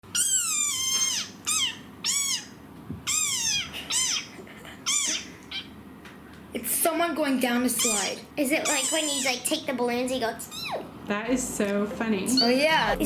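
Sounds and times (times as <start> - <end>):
fox calling: 0.1 - 4.3.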